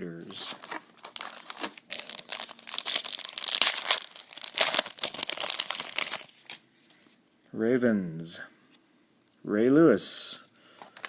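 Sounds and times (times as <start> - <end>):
card pack wrapper crinkling and tearing: 0.5 - 6.6.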